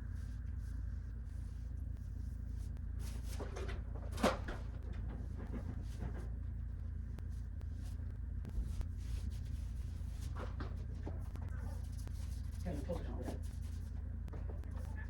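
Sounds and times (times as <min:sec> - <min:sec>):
low hum: 0:00.0 - 0:15.0
knocks and rattles: 0:03.4 - 0:06.4.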